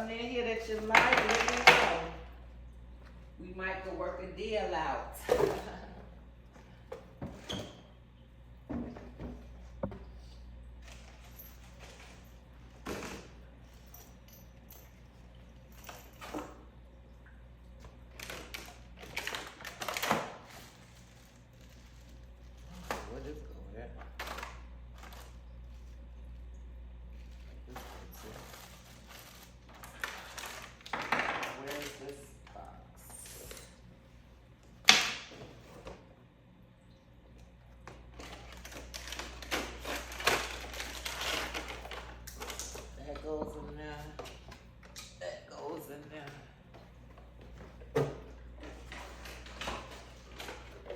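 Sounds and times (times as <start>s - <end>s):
low steady hum: 0.0s - 50.9s
objects tapping and knocking: 8.7s - 10.2s.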